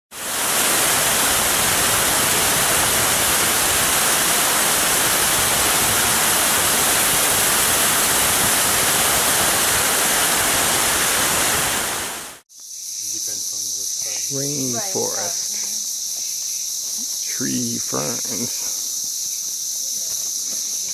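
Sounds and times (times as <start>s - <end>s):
water rushing: 0.1s - 12.4s
insects chirring: 12.5s - 20.9s.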